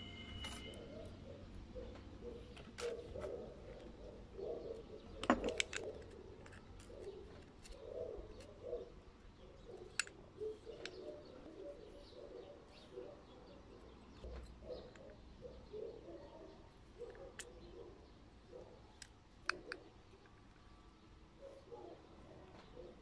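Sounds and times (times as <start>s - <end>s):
metal engine parts clicking: 5.1s - 8.6s, 9.6s - 11.4s.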